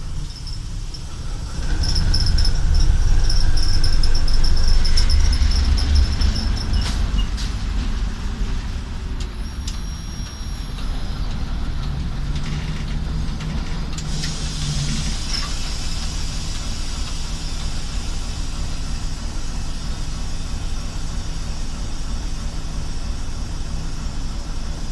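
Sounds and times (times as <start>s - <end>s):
diesel locomotive engine running: 0.0s - 24.9s
hiss: 14.0s - 24.8s.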